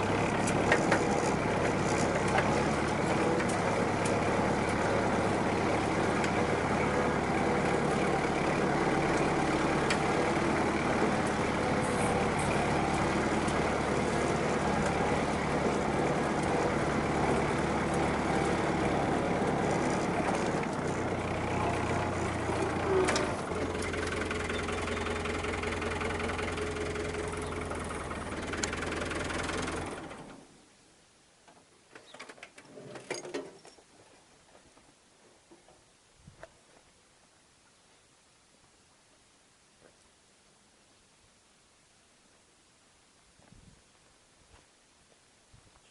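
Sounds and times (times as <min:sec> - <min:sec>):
tractor diesel engine running: 0:00.0 - 0:30.6.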